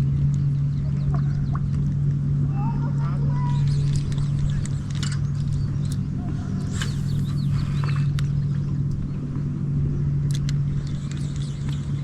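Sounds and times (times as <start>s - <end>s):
boat motor humming: 0.0s - 12.0s
faint bird chirps: 3.4s - 9.2s.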